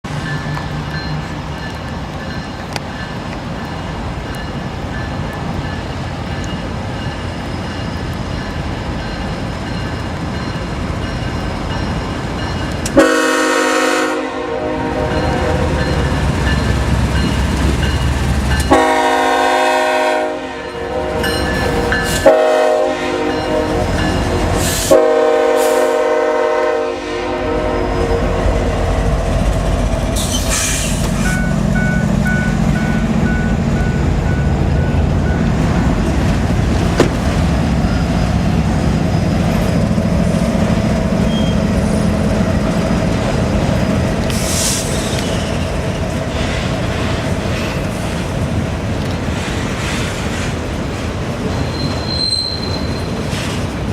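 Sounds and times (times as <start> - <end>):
train rumbling on rails: 0.0 - 53.9
train horn blasts: 12.9 - 16.1, 18.6 - 28.9.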